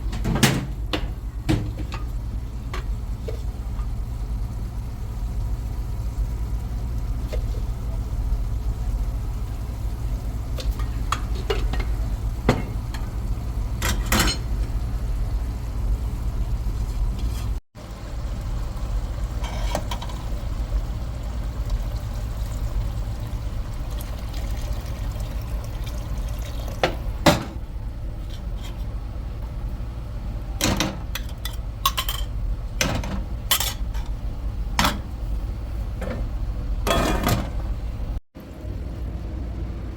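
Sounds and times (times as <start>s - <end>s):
utensils clinking against pots: 10.6s - 13.1s, 13.8s - 14.5s, 30.6s - 34.1s, 36.9s - 37.6s.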